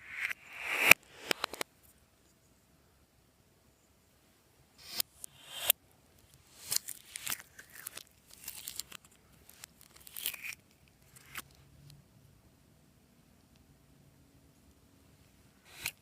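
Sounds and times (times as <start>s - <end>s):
slime materials crinkling and crunching: 6.6s - 11.4s.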